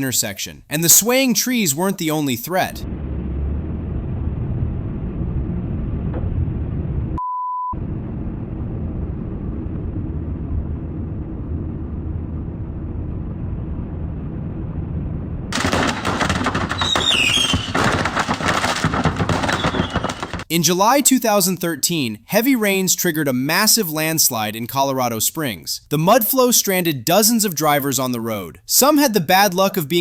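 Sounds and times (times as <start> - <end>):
short beep tone: 7.2 - 7.8.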